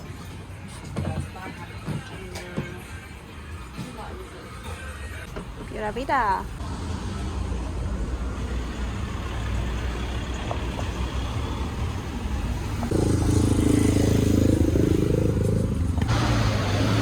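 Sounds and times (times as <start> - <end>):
road rumble: 5.1 - 17.0
vehicle engine running: 6.6 - 17.0.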